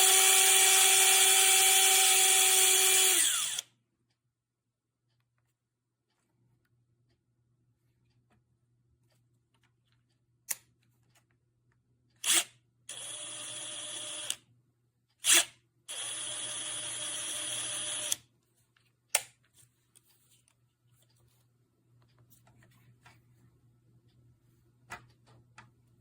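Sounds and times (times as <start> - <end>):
impact driver running: 0.0 - 3.6.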